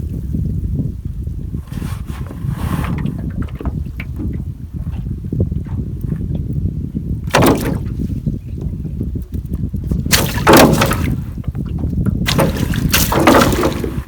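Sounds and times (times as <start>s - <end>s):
wind rumble on microphone: 0.0s - 14.0s
water splashing: 7.3s - 8.0s, 10.0s - 14.0s.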